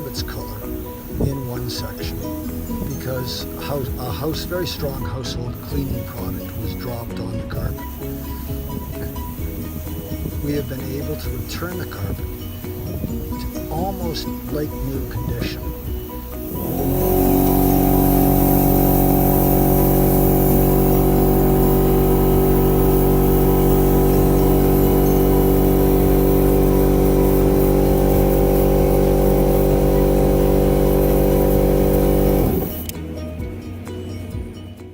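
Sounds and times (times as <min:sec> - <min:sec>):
machine motor running: 0:16.0 - 0:33.0.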